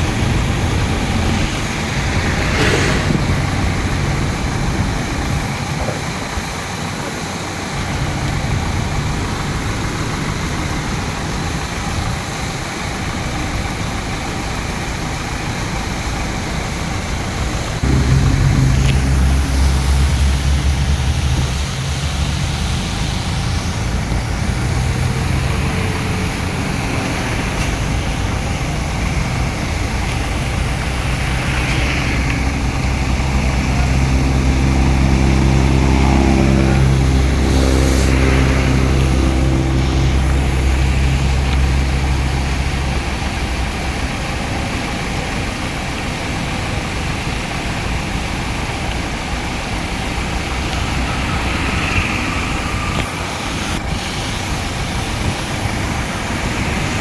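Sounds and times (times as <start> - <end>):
engine note rising and falling: 0.0 - 5.8, 16.0 - 44.6, 48.4 - 57.0
heavy diesel engines droning: 0.0 - 57.0.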